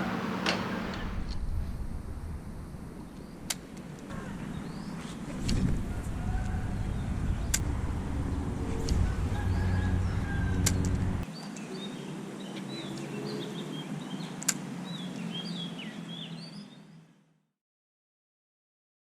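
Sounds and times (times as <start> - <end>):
sharp clicks: 3.4 - 4.0
low vehicle rumble: 4.0 - 11.3.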